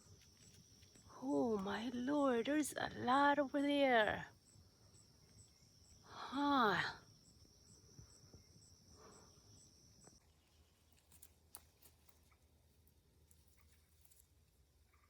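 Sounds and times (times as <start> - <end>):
faint ticks: 0.0 - 1.7
high-pitched insect trill: 0.0 - 11.3.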